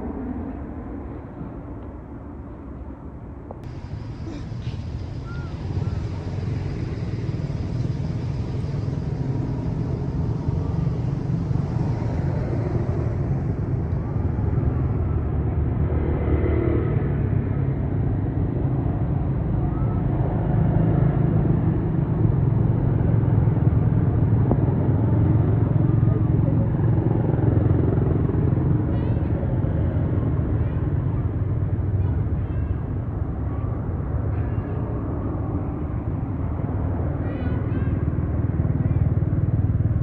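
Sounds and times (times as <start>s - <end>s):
motor vehicle engine rumble: 3.5s - 15.9s.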